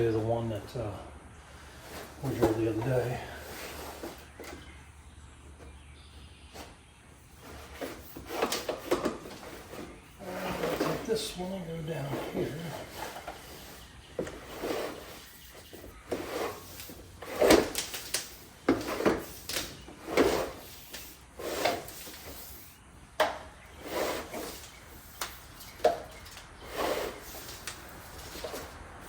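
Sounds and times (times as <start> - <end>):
cable rubbing and scraping: 7.2 - 22.8, 23.7 - 29.0.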